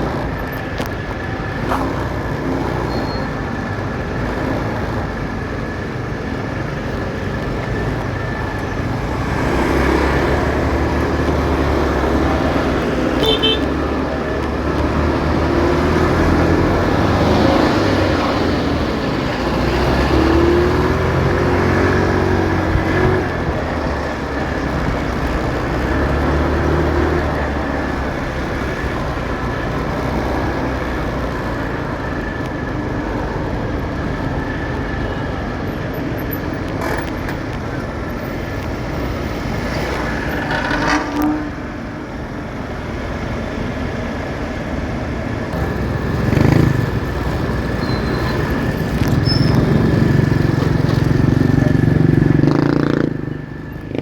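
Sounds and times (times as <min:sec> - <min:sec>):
road noise: 0:00.0 - 0:54.0
motorcycle engine running: 0:45.0 - 0:54.0.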